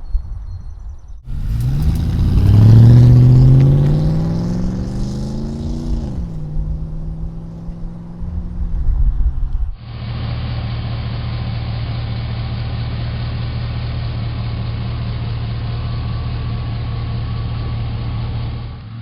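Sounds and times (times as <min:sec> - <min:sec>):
engine exhaust accelerating: 0:01.3 - 0:13.4.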